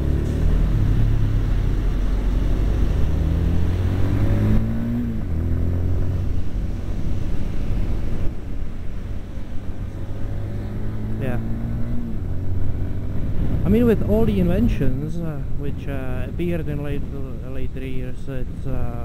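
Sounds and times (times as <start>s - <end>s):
motorcycle engine accelerating: 0.0s - 8.2s.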